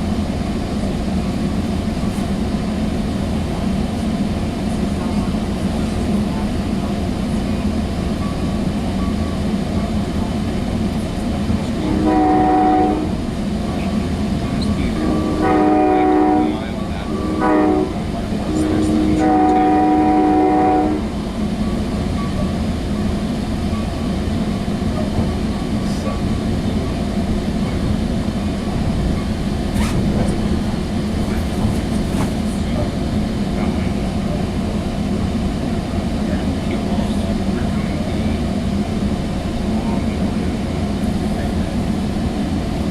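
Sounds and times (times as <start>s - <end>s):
train rumbling along: 0.0s - 42.9s
train horn: 11.8s - 13.2s, 15.0s - 21.2s.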